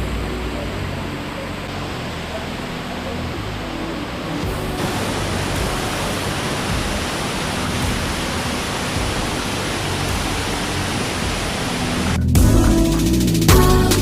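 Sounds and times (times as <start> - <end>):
waterfall pouring: 1.9 - 12.2.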